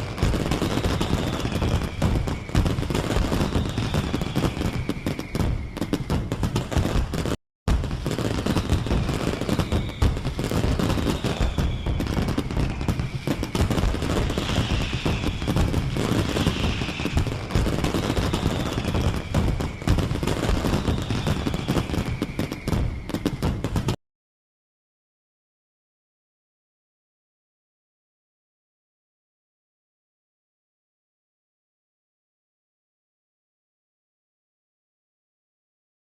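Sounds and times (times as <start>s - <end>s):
faint falling whistles: 0.0s - 24.0s.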